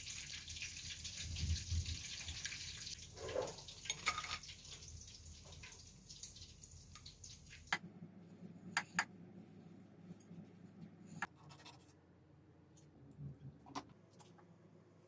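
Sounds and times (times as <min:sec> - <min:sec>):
kitchen items clicking and knocking: 0:03.2 - 0:04.6.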